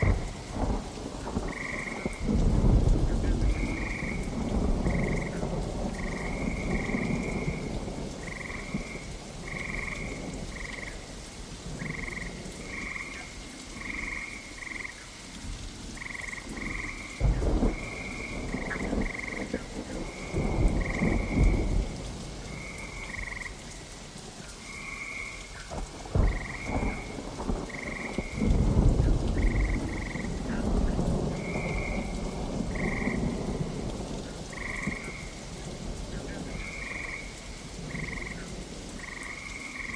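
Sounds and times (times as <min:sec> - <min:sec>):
thunder cracks and rumbles: 0:00.0 - 0:10.8, 0:16.0 - 0:23.4, 0:25.7 - 0:39.9
steady rain: 0:00.0 - 0:39.9
frog croaking: 0:01.3 - 0:02.3, 0:03.5 - 0:11.0, 0:11.8 - 0:15.1, 0:16.0 - 0:21.6, 0:22.5 - 0:23.7, 0:24.6 - 0:27.1, 0:27.7 - 0:28.4, 0:29.4 - 0:33.6, 0:34.5 - 0:35.4, 0:36.3 - 0:39.9.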